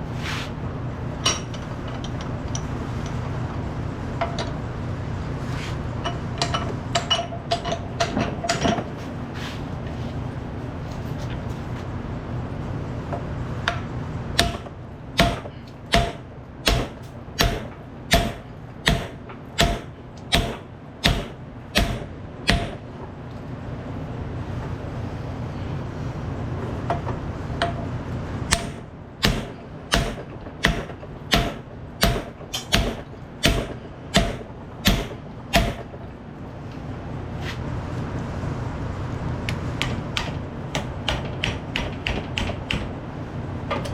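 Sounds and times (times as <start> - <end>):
steady low hum: 0.0 - 43.9
hammer striking steel: 14.4 - 22.8, 28.5 - 36.0.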